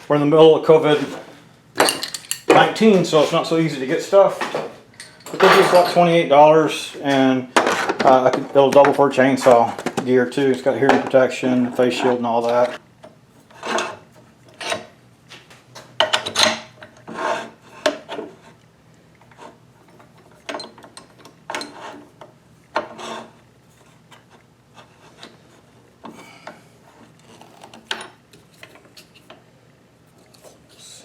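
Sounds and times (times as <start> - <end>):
chisel scraping spinning wood: 13.4 - 14.9, 16.9 - 18.6, 21.5 - 25.8.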